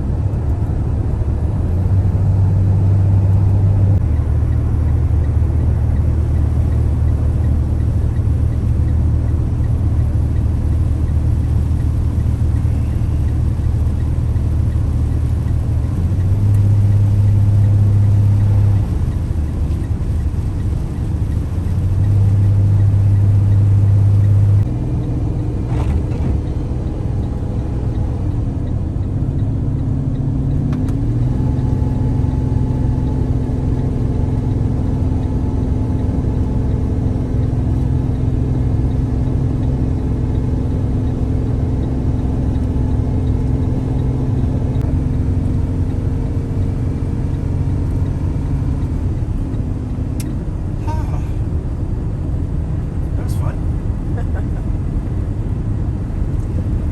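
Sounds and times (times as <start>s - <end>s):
vehicle engine and road drone: 0.0s - 56.9s.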